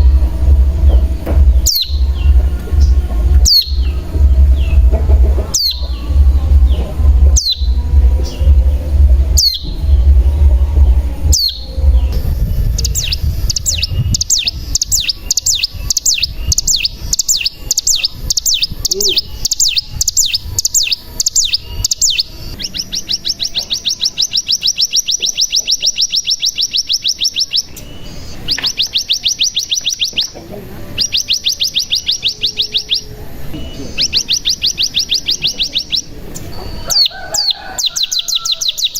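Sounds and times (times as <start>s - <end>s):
low rumble: 0.0s - 22.9s
bird buzzing trills: 0.0s - 38.9s
bird call notes and trills: 0.0s - 38.9s.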